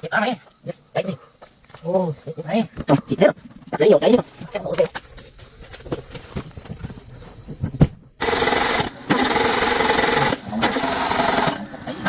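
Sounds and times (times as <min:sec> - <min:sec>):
power tool hissing and humming: 0:08.2 - 0:11.8.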